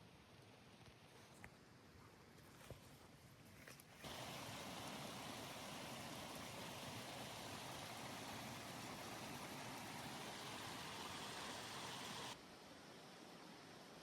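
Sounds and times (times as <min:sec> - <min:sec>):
rain hissing: 0:04.0 - 0:12.4.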